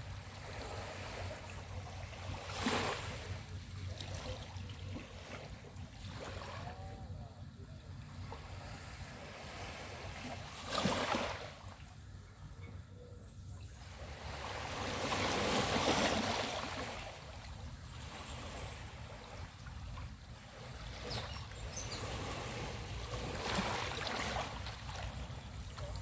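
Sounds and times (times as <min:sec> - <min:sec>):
ocean waves washing onto beach: 0:14.0 - 0:26.0.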